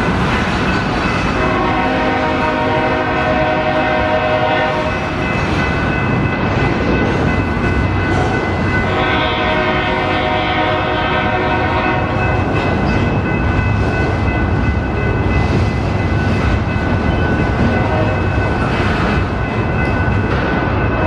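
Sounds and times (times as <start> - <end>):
rumble of train cars: 0.0 - 21.0
locomotive horn blast: 1.4 - 4.9, 8.9 - 12.1.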